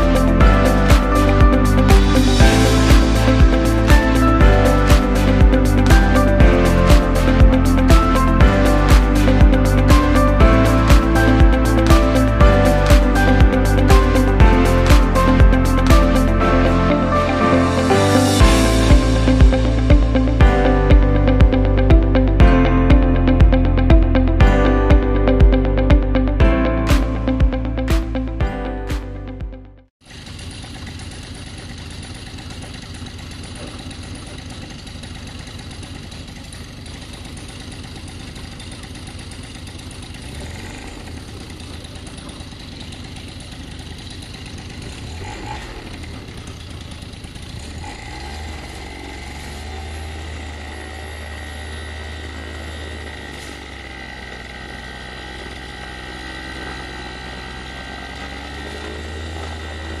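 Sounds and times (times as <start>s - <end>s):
paramotor engine droning: 30.0s - 60.0s.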